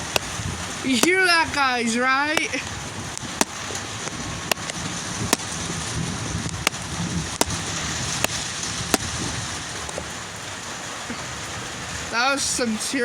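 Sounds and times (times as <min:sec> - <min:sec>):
close raindrop ticks: 0:00.0 - 0:10.1
steady rain: 0:00.0 - 0:13.0
low rumble of thunder: 0:02.6 - 0:10.5.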